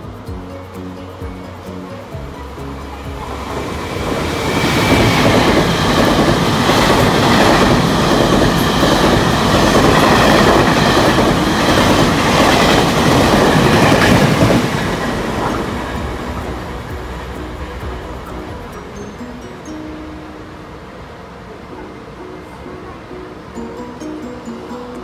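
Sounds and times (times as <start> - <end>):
train passing at speed: 0.0 - 25.0.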